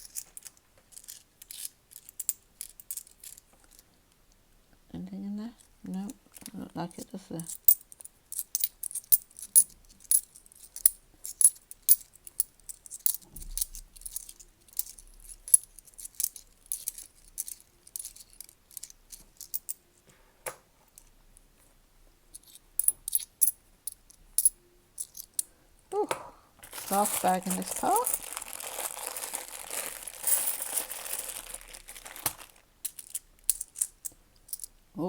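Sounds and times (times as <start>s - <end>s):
coins clinking: 7.4s - 19.8s, 22.4s - 25.4s, 26.8s - 34.7s.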